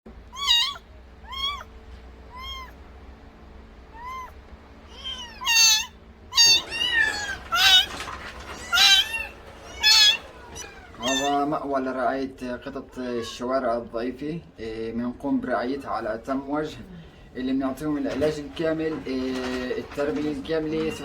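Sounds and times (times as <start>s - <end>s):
cats meowing: 0.2s - 2.9s, 3.8s - 11.6s, 12.6s - 13.7s.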